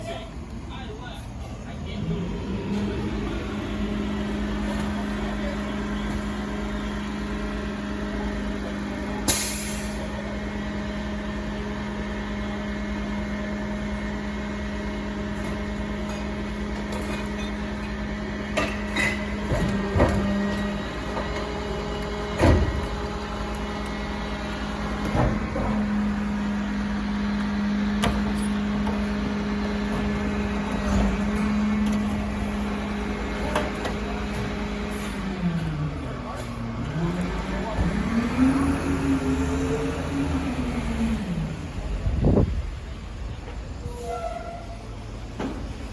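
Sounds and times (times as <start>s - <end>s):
truck engine hum: 0.0s - 44.1s
knocks and clunks: 22.3s - 23.2s, 24.9s - 26.1s.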